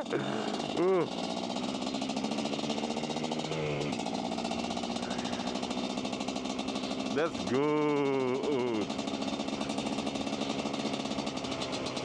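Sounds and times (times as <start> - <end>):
dirtbike engine running: 0.0 - 12.0.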